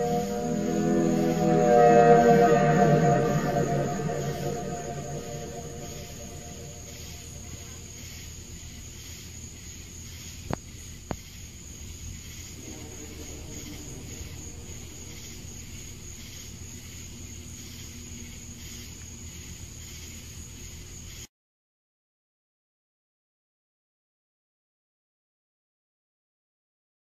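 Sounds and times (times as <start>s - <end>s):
crickets chirping: 0.0s - 21.3s
low steady rumble: 12.6s - 16.7s.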